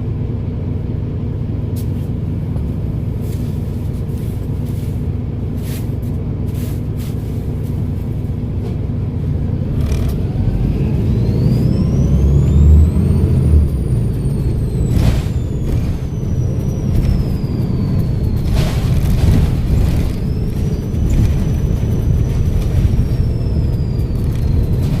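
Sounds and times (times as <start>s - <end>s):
bus diesel engine under load: 0.0s - 25.0s
turbocharger whistle: 10.2s - 25.0s.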